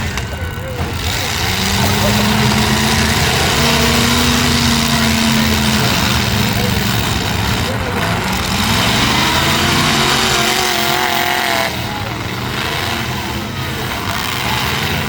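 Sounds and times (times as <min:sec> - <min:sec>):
truck engines revving: 0:00.0 - 0:15.0.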